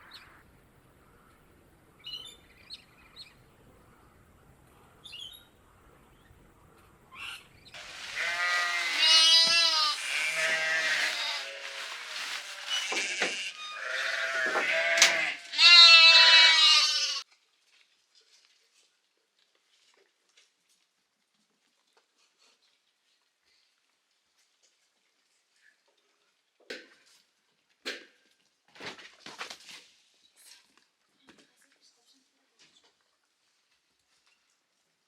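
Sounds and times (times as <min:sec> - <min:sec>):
livestock bleating: 0:08.1 - 0:17.2.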